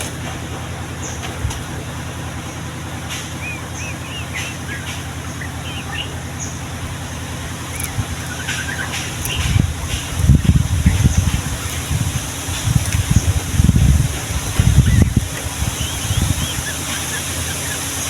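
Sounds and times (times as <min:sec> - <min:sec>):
passing traffic rumble: 0:00.0 - 0:18.0
bird chirps: 0:03.1 - 0:06.8, 0:07.7 - 0:09.7, 0:14.6 - 0:18.0.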